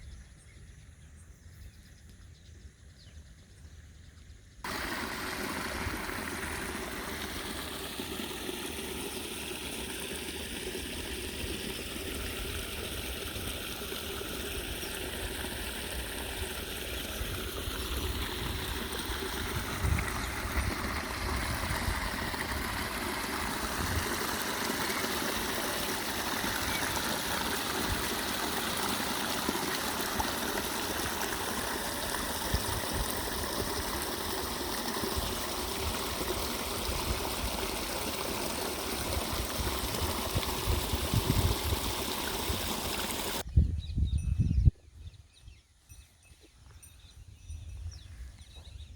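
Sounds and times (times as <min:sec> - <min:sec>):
flowing water rushing: 0:04.6 - 0:43.4.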